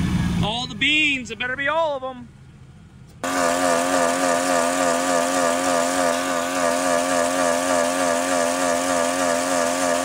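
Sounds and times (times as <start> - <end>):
engine at full throttle: 0.0 - 0.8, 3.2 - 10.0.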